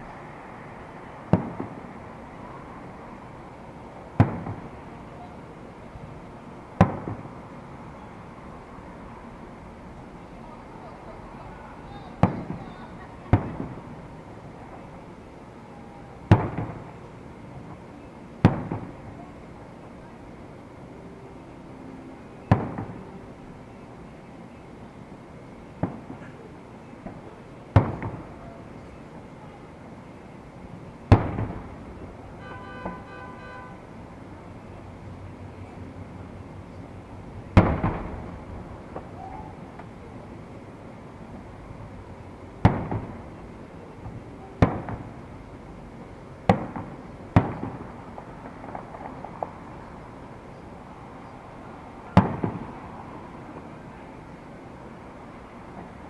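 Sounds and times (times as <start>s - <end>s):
fireworks bangs: 1.2s - 2.0s, 4.1s - 5.4s, 6.8s - 7.5s, 11.9s - 14.9s, 16.2s - 17.1s, 18.4s - 19.3s, 22.5s - 23.1s, 25.8s - 28.9s, 31.0s - 34.0s, 37.4s - 40.2s, 42.6s - 45.2s, 46.4s - 50.3s, 52.0s - 52.8s
sharp bangs with echo: 37.6s - 38.3s, 42.6s - 43.2s.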